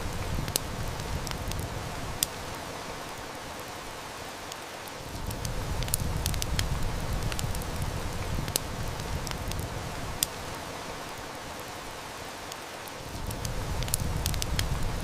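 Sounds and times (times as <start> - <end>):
heavy rain hissing: 0.0 - 15.0
wood fire crackling: 0.0 - 15.0.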